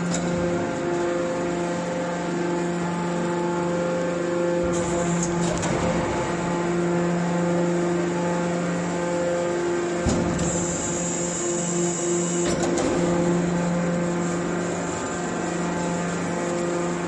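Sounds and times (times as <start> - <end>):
scrap metal baler humming: 0.0 - 17.0.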